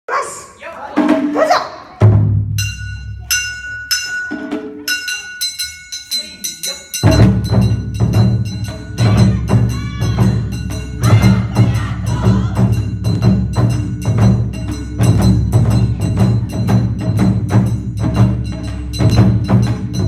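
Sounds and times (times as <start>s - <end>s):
drums and clappers beat: 0.8s - 20.0s
loud drum hit: 1.0s - 3.1s, 7.0s - 20.0s.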